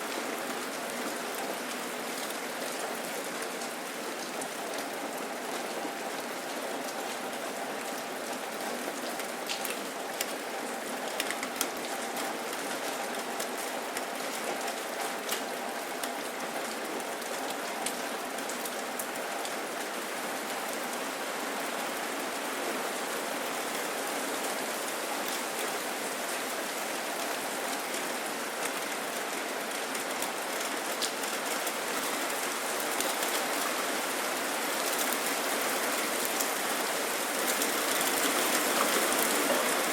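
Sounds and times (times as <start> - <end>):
steady rain hiss: 0.0 - 39.9
raindrop ticks: 9.1 - 10.4, 11.0 - 12.6.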